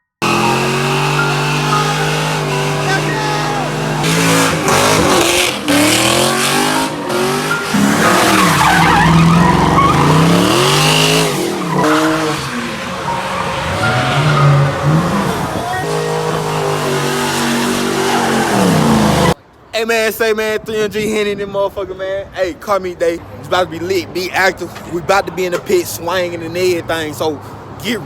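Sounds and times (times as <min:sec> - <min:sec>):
car engines revving: 0:00.2 - 0:19.4
tires squealing: 0:00.2 - 0:19.4.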